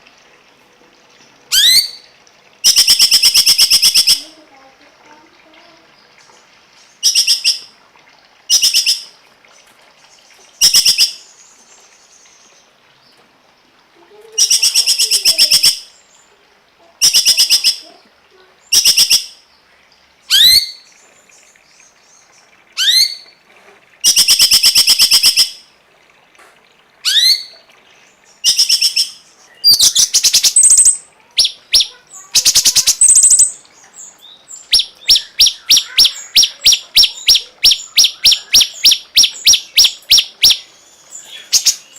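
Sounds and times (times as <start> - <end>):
songbird buzzy calls: 1.5 - 4.4, 6.8 - 7.7, 17.0 - 18.0, 28.3 - 41.9.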